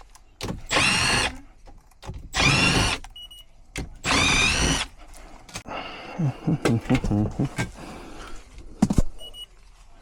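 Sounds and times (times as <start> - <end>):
cordless drill whining: 0.6 - 1.4, 2.3 - 3.0, 4.0 - 4.9.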